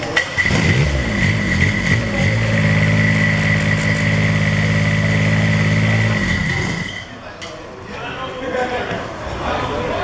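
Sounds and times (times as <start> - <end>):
diesel engine starting and running: 0.2 - 7.1.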